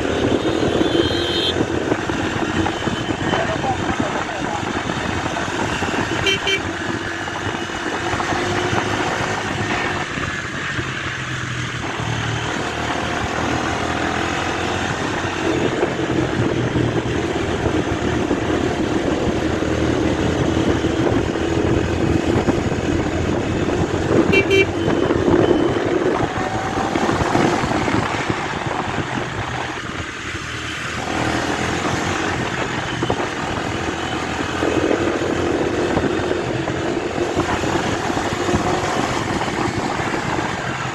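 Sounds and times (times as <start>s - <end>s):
motorcycle engine running: 0.0s - 40.9s
road traffic: 0.0s - 40.9s
vehicle horns honking: 0.1s - 1.8s, 5.6s - 7.0s, 24.2s - 26.1s.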